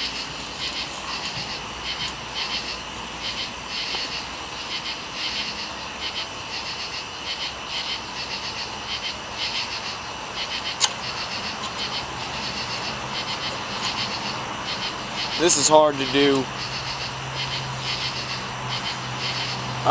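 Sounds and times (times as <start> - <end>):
small animals chirping: 0.0 - 19.9
sharp click: 10.8 - 11.0.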